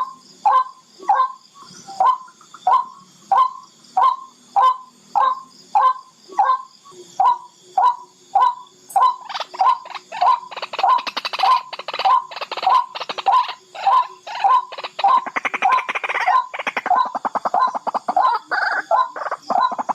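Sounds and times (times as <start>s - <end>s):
rail bird calling: 0.0s - 19.9s.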